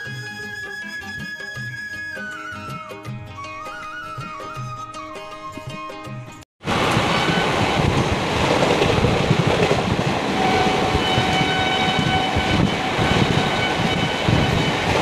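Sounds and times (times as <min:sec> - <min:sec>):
music: 0:00.0 - 0:06.4
train wheels clattering on rails: 0:06.7 - 0:15.0.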